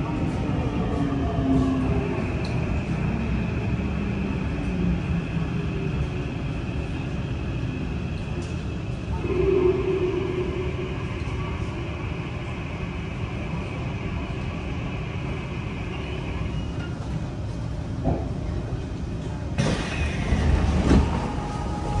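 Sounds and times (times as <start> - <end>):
hissy platform ambience: 0.0 - 22.0
train rolling to a stop: 19.5 - 22.0
train doors opening: 19.6 - 22.0.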